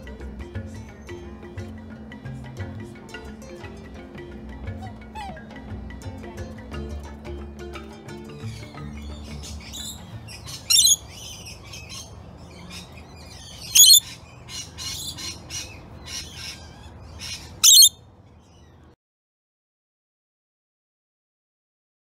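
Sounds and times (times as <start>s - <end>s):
shrill bird squawks: 9.7s - 12.1s, 12.7s - 18.0s
bird chirps and whistles: 10.7s - 11.0s, 13.6s - 14.1s, 17.6s - 18.0s.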